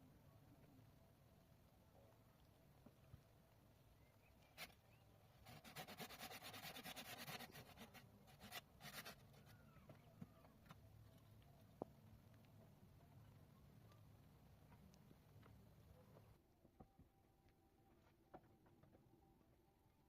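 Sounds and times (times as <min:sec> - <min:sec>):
rapid scraping strokes: 0:05.4 - 0:09.4.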